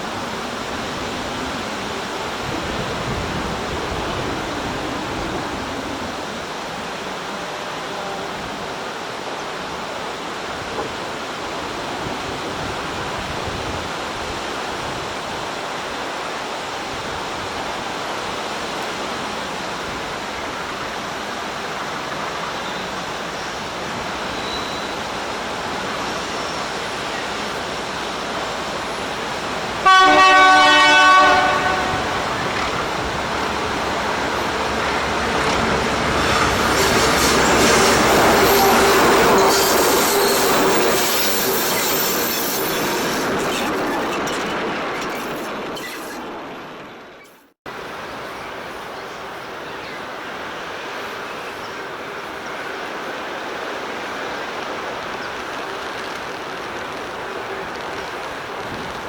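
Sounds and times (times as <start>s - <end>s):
train approaching: 0.0s - 13.2s, 14.0s - 59.0s
rain hiss: 0.0s - 47.0s, 47.7s - 59.0s
locomotive horn blast: 29.8s - 43.2s.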